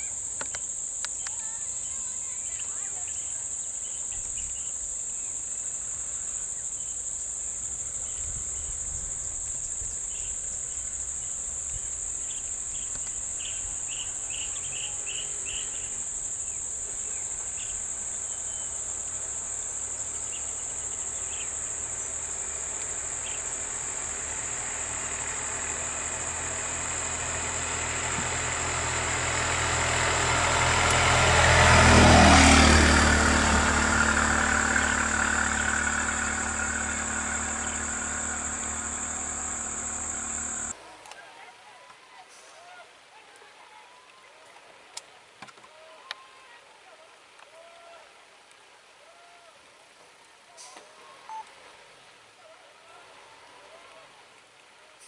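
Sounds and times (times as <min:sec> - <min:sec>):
insect chirps: 0:00.0 - 0:40.7
vehicle engine approaching: 0:13.6 - 0:40.7
high-pitched insect drone: 0:31.8 - 0:40.7.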